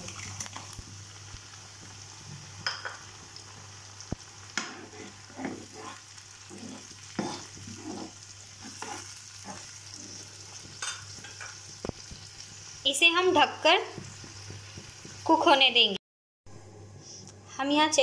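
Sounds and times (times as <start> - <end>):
onions sizzling in oil: 0.0 - 16.0
spoon scraping a pan: 4.5 - 12.3.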